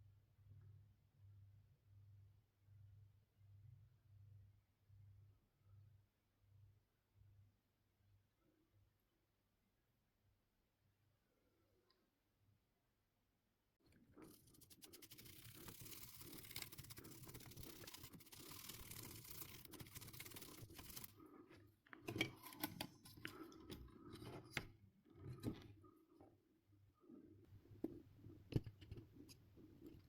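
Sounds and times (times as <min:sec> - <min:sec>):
scratchy scraping: 0:14.1 - 0:21.3.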